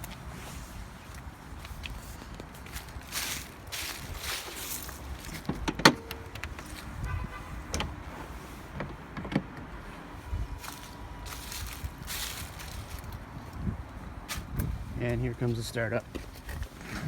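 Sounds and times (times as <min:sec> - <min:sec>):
handling clicks and knocks: 0:05.3 - 0:08.0.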